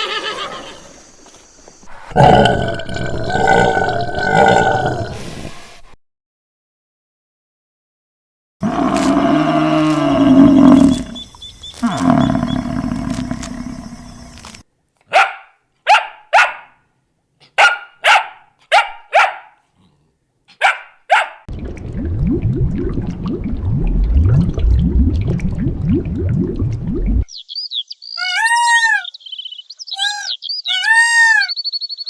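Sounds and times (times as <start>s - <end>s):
dog barking: 15.1s - 16.8s, 17.4s - 19.6s, 20.5s - 21.5s
wavering animal call: 28.2s - 29.2s, 30.0s - 31.6s.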